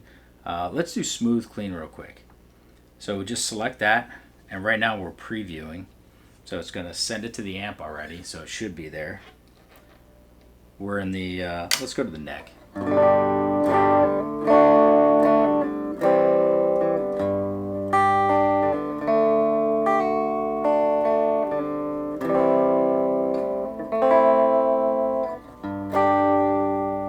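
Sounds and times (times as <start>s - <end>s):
clean electric guitar chords and notes: 12.5s - 27.0s.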